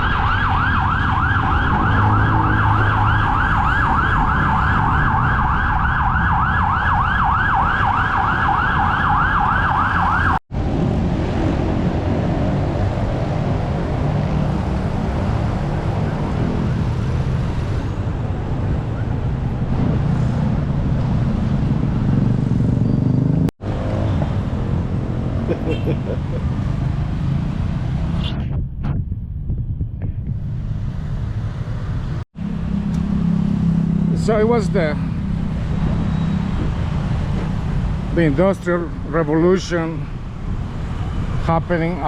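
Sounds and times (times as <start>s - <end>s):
emergency siren yelping: 0.0s - 10.4s
road traffic noise: 0.0s - 42.0s.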